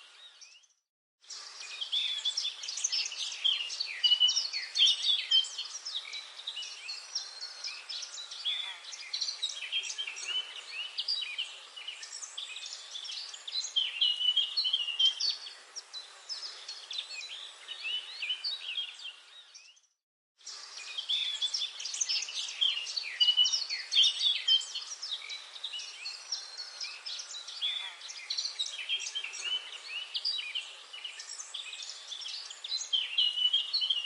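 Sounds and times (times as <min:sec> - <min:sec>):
songbirds chirping and trilling: 0:00.0 - 0:34.0
faint background hiss: 0:20.4 - 0:34.0.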